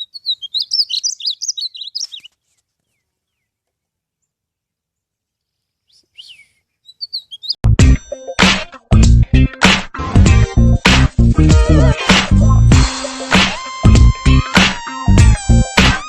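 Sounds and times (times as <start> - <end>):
bird chirping: 0.0 - 7.6
loud music with heavy beat: 7.8 - 16.0.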